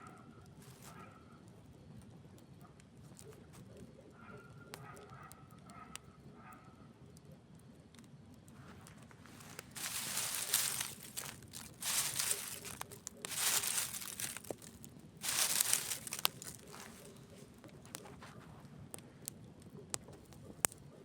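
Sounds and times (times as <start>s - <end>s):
campfire crackling: 7.9s - 20.9s.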